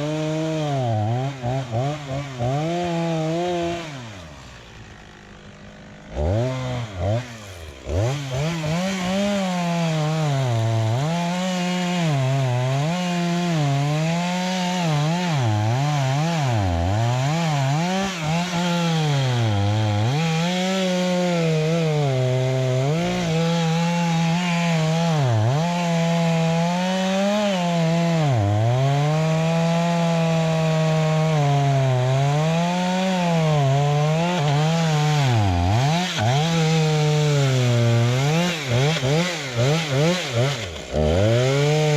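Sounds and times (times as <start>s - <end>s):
chainsaw cutting: 0.0s - 41.9s.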